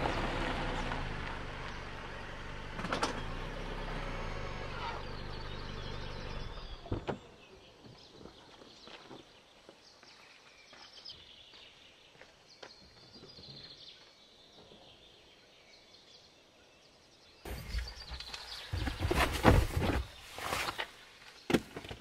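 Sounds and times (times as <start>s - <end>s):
small birds chirping: 4.6s - 21.6s.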